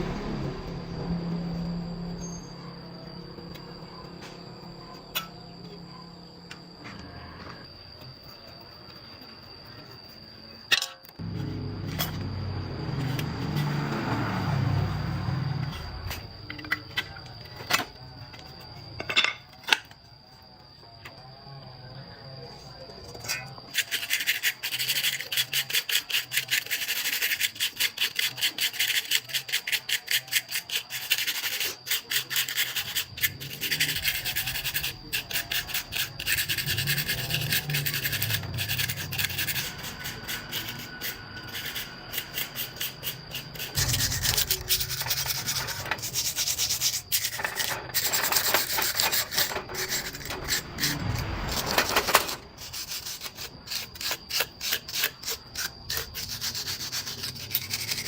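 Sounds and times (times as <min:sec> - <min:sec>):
hand sanding metal part: 0:23.8 - 0:51.0, 0:52.6 - 0:58.0.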